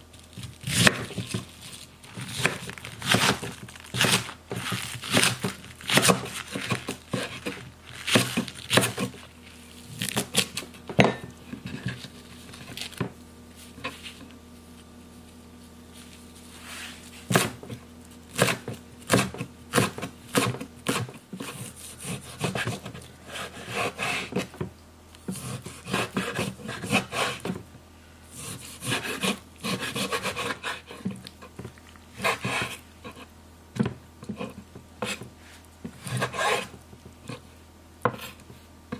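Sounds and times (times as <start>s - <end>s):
knife chopping on wooden board: 0.6s - 1.5s, 2.2s - 9.2s, 17.3s - 24.7s, 25.3s - 27.6s, 28.4s - 33.2s, 33.8s - 35.3s, 35.9s - 37.4s, 38.0s - 38.4s.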